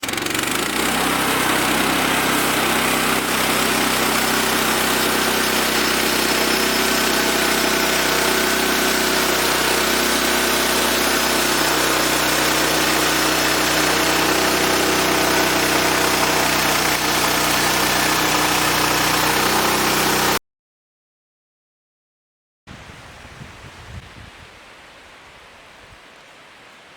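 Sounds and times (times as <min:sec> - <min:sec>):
sawmill engine running: 0:00.0 - 0:20.4.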